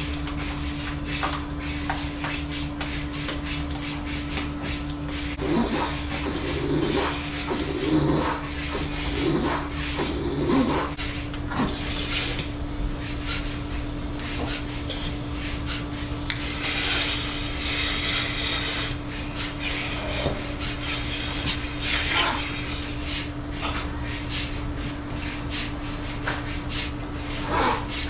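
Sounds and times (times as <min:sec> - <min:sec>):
hissing: 0:00.0 - 0:11.0
machinery hum: 0:00.0 - 0:11.2, 0:12.6 - 0:28.0.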